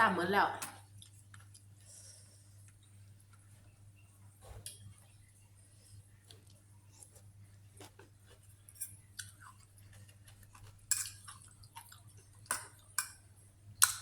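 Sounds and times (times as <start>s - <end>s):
wet chewing and lip smacks: 0.9s - 1.8s, 7.8s - 13.2s.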